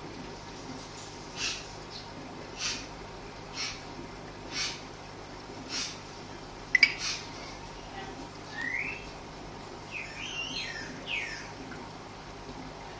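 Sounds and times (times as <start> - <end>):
bird chirping: 9.9 - 11.5.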